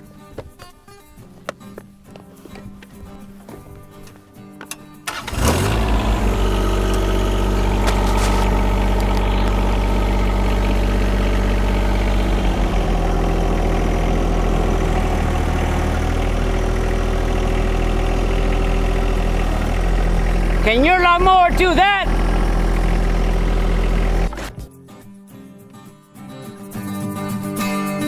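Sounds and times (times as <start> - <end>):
tractor diesel engine starting: 4.7 - 24.7.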